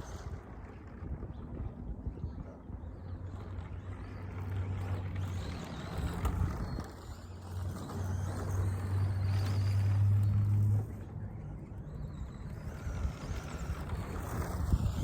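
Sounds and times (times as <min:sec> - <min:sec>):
toy truck motor hum: 0:00.0 - 0:01.0, 0:03.4 - 0:15.0
tyres on loose dirt: 0:03.4 - 0:15.0.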